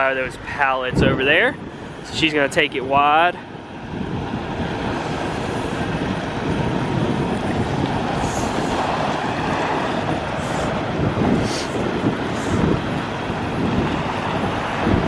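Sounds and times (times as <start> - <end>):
wind buffeting microphone: 0.0 - 15.0
semi truck engine running: 3.4 - 15.0
brief high hisses: 11.4 - 11.8.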